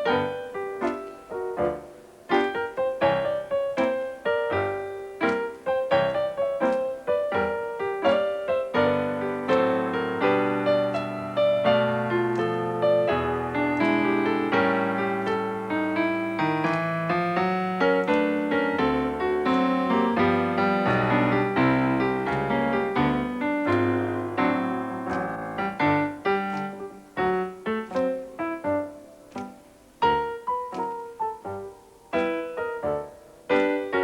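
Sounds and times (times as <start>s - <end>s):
boogie-woogie piano: 0.0s - 34.0s.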